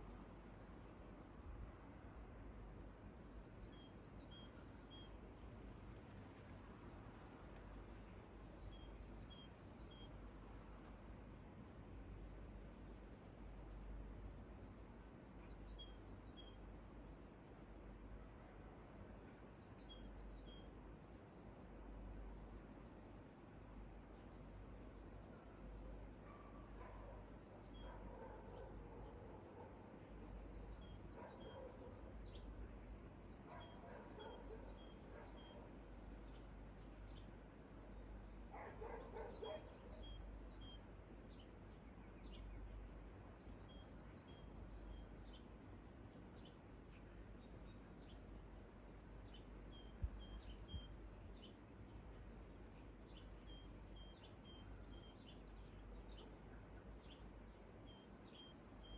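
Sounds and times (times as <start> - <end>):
insect trill: 0.0 - 58.9
small birds chirping: 30.4 - 32.6, 33.3 - 37.4, 38.6 - 45.5, 49.2 - 58.9.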